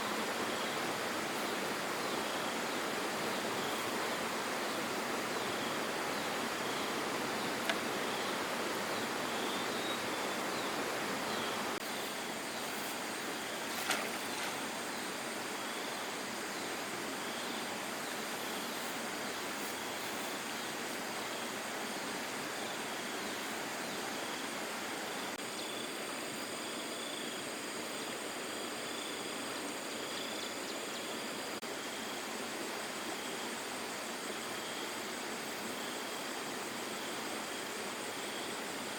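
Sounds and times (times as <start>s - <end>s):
running water rushing: 0.0s - 25.4s
faint clicks: 7.6s - 7.9s.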